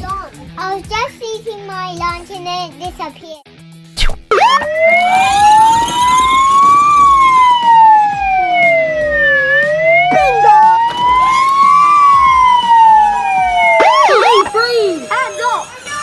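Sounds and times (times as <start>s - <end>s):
police siren wailing: 4.0s - 16.0s.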